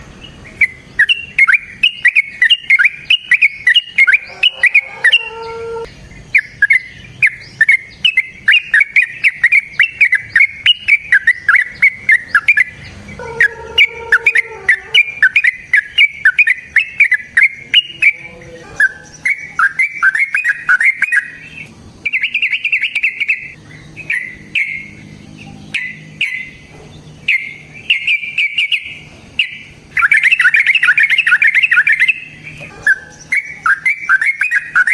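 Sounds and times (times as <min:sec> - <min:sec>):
lower bird call: 0:00.0 - 0:34.9
lovebird chattering call: 0:00.2 - 0:34.9.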